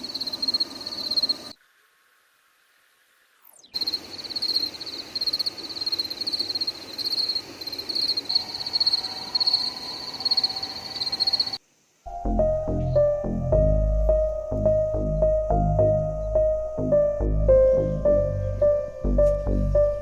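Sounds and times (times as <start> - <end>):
frogs croaking in chorus: 3.8 - 11.6
music: 12.1 - 20.0.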